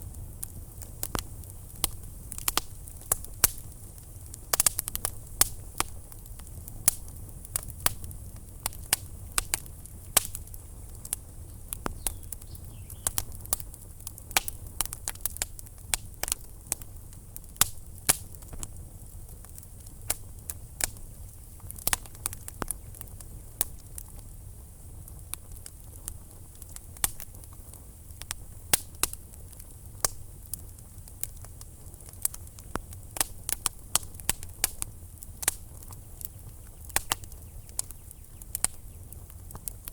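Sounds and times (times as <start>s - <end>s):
low steady fire rumble: 0.0s - 39.9s
wood fire crackling: 0.0s - 39.9s.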